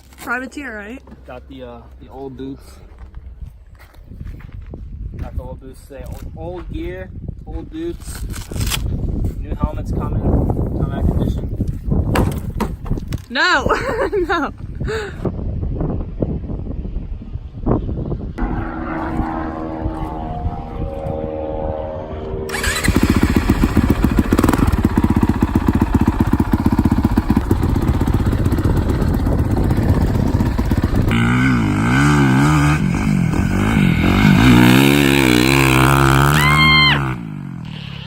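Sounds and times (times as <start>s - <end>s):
dirt bike engines revving: 18.4s - 38.0s.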